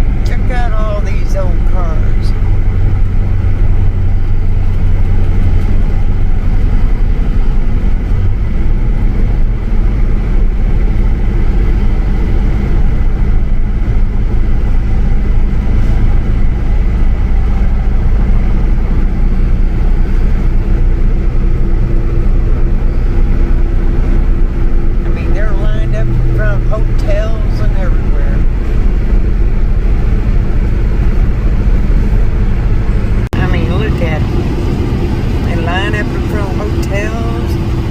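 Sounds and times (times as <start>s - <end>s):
road noise: 0.0s - 37.9s
vehicle engine drone: 0.0s - 37.9s.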